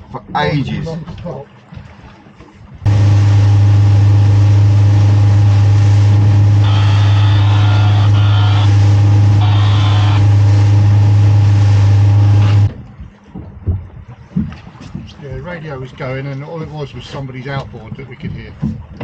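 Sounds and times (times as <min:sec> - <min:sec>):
radio static drone with low hum: 0:02.9 - 0:12.8
outboard motor running: 0:02.9 - 0:14.8.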